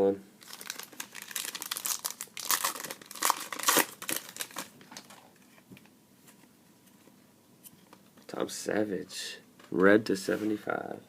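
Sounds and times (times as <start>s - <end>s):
wrapper crinkling and tearing: 0.4s - 5.2s.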